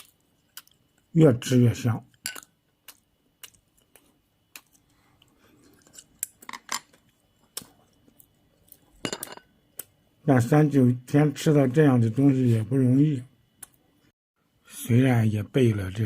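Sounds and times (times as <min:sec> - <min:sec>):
person chewing food: 0:00.0 - 0:01.1, 0:02.4 - 0:09.0.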